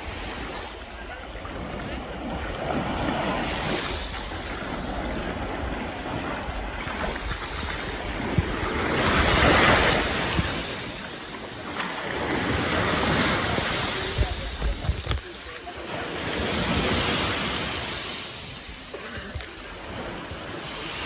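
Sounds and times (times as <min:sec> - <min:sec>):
sea water splashing: 0:00.0 - 0:21.0
wind buffeting microphone: 0:00.0 - 0:21.0.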